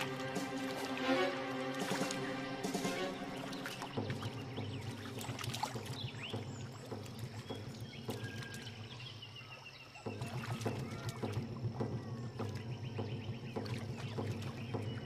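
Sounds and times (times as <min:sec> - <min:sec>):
steady low drone: 0:00.0 - 0:08.0
water splashing and sloshing: 0:00.0 - 0:15.0.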